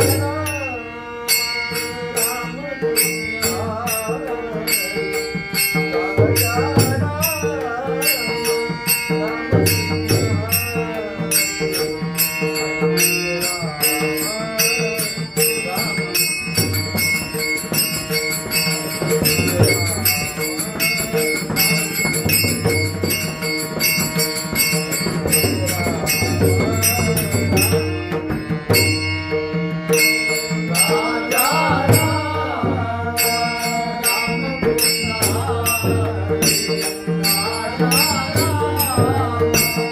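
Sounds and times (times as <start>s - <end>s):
small hand cymbals: 0.0s - 28.1s
man singing: 0.0s - 39.9s
drum beat: 16.6s - 29.0s.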